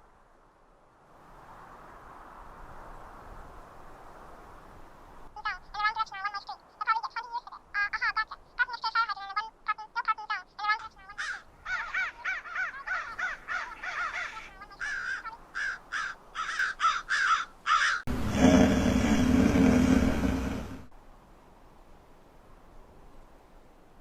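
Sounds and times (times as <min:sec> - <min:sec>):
crows cawing: 0:11.2 - 0:18.1.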